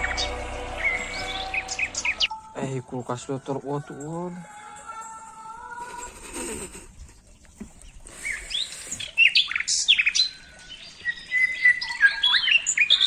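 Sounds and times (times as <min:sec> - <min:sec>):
birds whistling and chirping: 0:00.0 - 0:02.3, 0:08.0 - 0:13.0.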